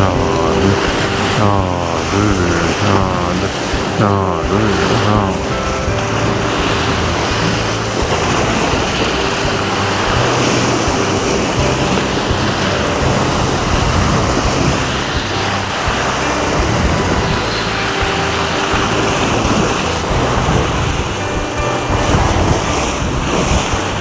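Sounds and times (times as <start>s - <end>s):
sea waves washing against rocks: 0.0s - 24.0s.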